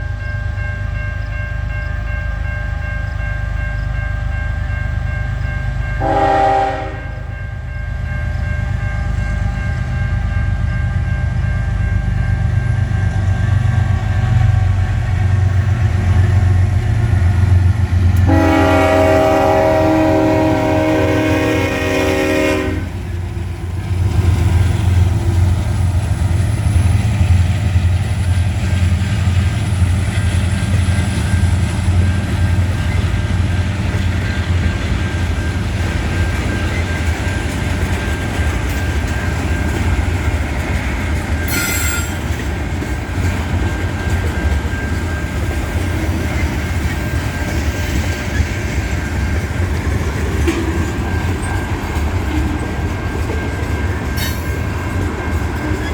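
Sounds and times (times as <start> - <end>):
freight train rumbling: 0.0 - 55.9
train horn: 5.9 - 7.5, 18.2 - 23.2
faint wheel squeal: 41.5 - 42.2
sharp wheel screech: 41.5 - 42.2.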